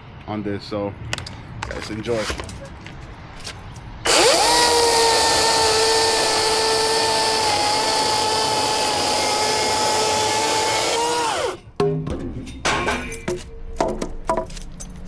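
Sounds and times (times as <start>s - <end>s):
chainsaw whining while cutting wood: 4.1s - 11.6s.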